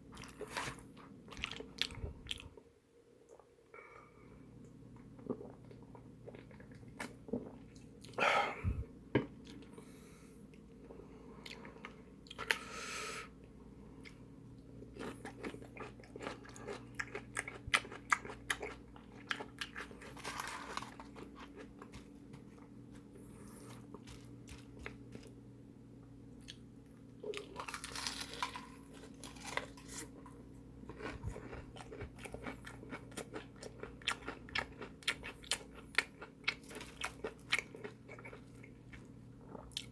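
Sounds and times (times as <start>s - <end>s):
crunching and chewing fried food: 0.1s - 2.7s, 14.0s - 25.4s, 26.4s - 39.9s.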